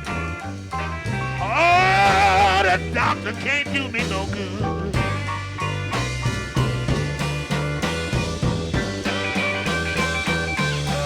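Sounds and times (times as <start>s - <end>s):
electric blues band playing: 0.0s - 11.0s
person singing: 1.4s - 5.2s.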